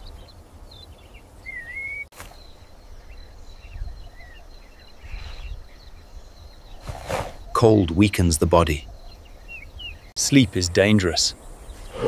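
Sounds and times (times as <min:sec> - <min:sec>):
low wind rumble: 0:00.0 - 0:12.0
small birds chirping: 0:00.0 - 0:12.0
wavering whistled bird call: 0:01.4 - 0:02.1.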